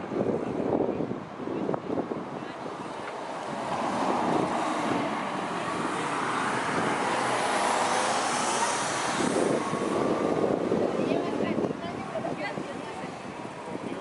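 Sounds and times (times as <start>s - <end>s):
sea surf washing: 2.6s - 14.0s
passing engine drone: 3.2s - 11.0s.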